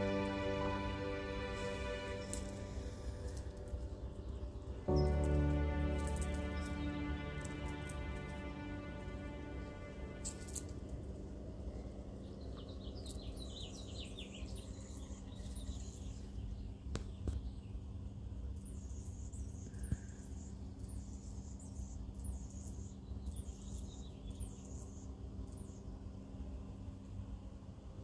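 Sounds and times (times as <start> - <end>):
low steady hum: 0.0 - 28.0
small birds chirping: 12.1 - 26.2.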